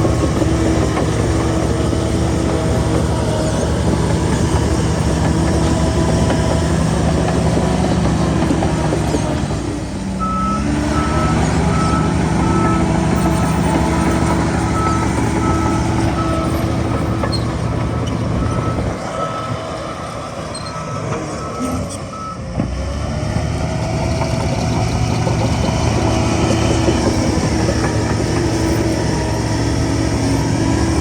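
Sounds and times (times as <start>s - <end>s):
heavy diesel machine engine: 0.0s - 31.0s
reversing alarm beeping: 10.2s - 22.4s.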